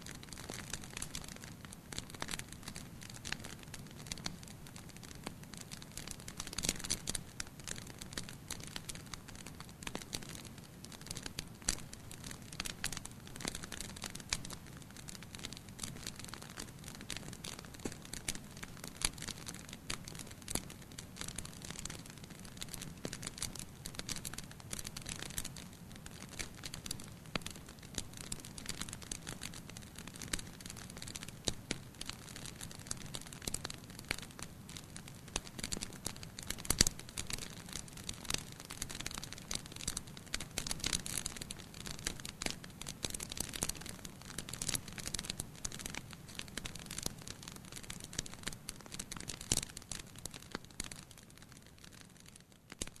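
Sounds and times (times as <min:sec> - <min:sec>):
fire crackling and popping: 0:00.0 - 0:53.0.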